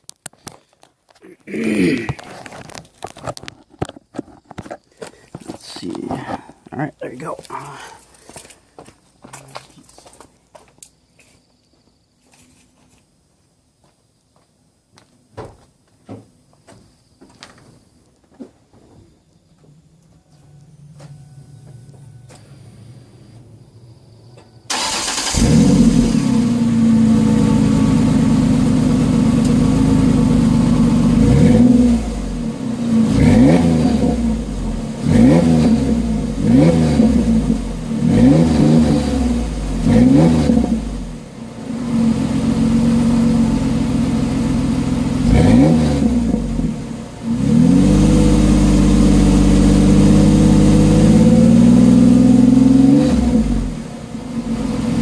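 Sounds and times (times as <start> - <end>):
engine revving with low exhaust rumble: 20.5 - 55.0.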